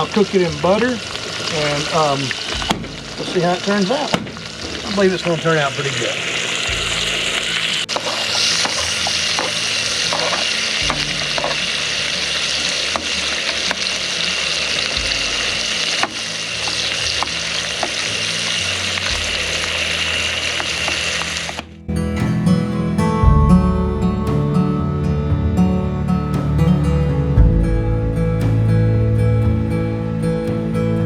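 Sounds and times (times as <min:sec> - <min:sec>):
fat popping and crackling: 0:00.0 - 0:21.7
steaks sizzling in a pan: 0:00.0 - 0:21.7.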